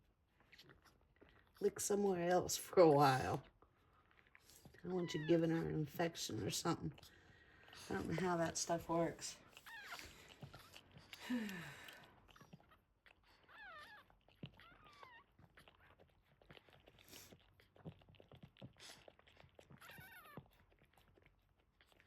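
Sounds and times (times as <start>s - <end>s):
puppies squeaking: 9.5s - 10.8s, 13.3s - 16.9s, 19.7s - 20.6s.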